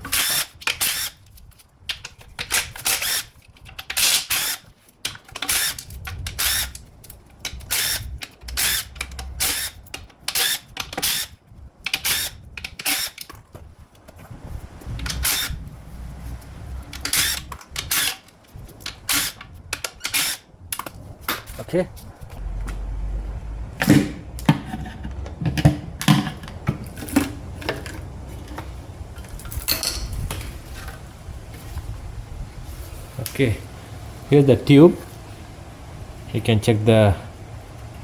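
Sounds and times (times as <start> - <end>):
socket wrench clicking: 1.9 - 13.3, 16.9 - 20.9.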